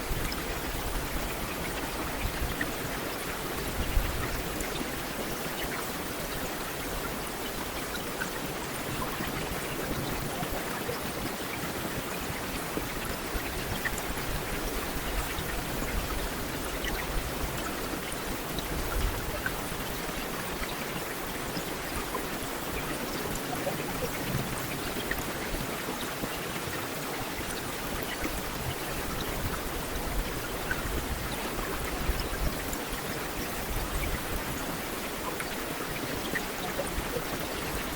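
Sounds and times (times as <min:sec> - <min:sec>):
heavy rain on a street: 0:00.0 - 0:37.9.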